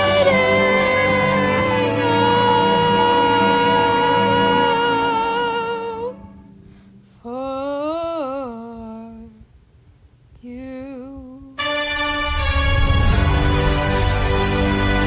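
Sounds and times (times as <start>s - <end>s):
backing music: 0.0s - 7.0s, 11.6s - 15.0s
person singing with vibrato: 0.0s - 9.5s, 10.4s - 12.4s.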